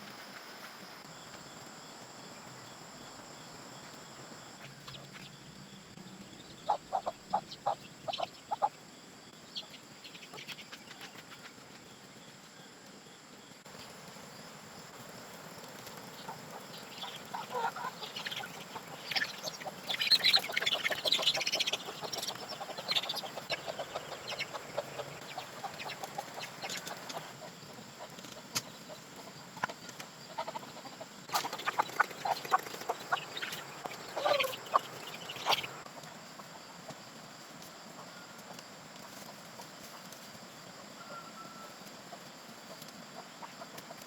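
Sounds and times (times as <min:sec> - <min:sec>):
chickens clucking: 0:06.2 - 0:12.0, 0:14.8 - 0:44.0.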